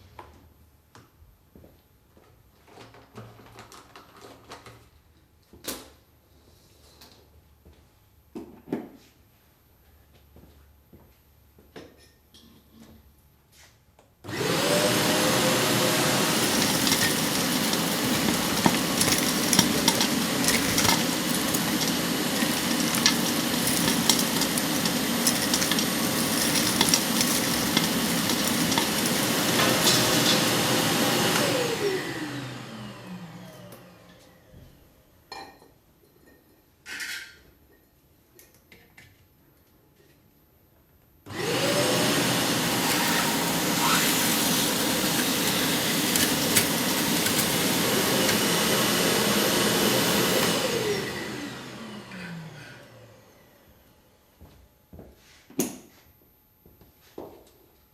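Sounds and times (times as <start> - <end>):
debris rattling in vacuum: 14.3 - 32.6, 41.3 - 52.4
wet and dry vacuum cleaner running: 14.3 - 34.1, 41.3 - 53.7
vacuum winding down whine: 14.3 - 34.2, 41.3 - 53.6.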